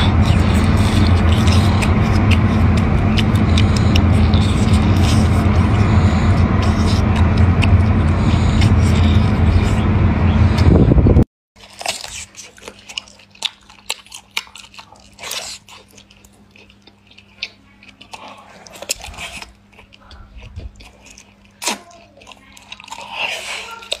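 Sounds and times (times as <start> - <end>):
wet mouth clicks: 0.0 - 9.4
chewing squid: 0.0 - 9.9, 11.6 - 24.0
sucking smears: 0.0 - 10.8
faint low hum: 0.0 - 24.0.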